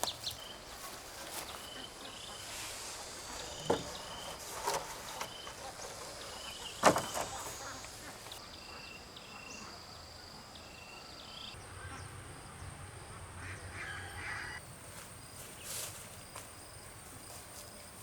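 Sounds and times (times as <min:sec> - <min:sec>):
insect chirps: 0:00.0 - 0:11.6
insects droning: 0:00.0 - 0:18.0
faint animal call: 0:13.4 - 0:14.6.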